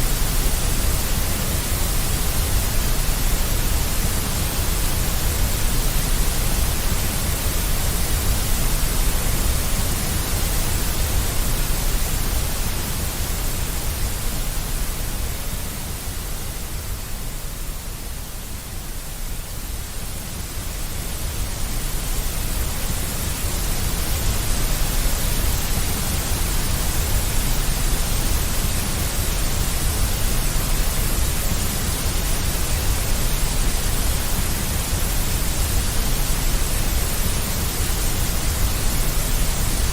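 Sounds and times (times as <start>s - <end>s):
deep white noise hiss: 0.0s - 39.9s.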